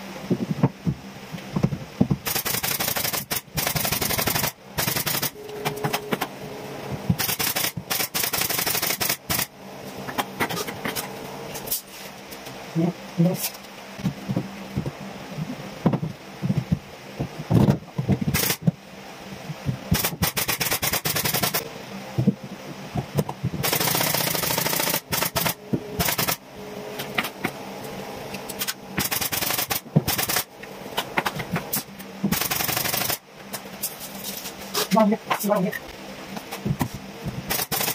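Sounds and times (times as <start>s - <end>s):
pneumatic nail gun firing: 2.2s - 6.1s, 7.2s - 9.5s, 18.3s - 18.7s, 19.9s - 21.6s, 23.6s - 26.4s, 28.6s - 30.5s, 31.7s - 33.2s, 37.5s - 37.9s.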